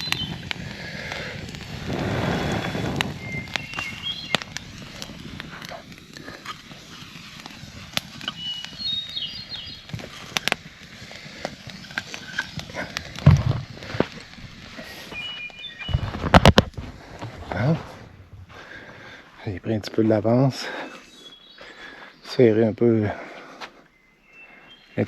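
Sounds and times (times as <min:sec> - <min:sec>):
bird chirps and whistles: 0:00.0 - 0:00.4, 0:02.3 - 0:04.8, 0:08.2 - 0:09.9, 0:15.0 - 0:16.3, 0:20.7 - 0:22.5, 0:23.9 - 0:25.0.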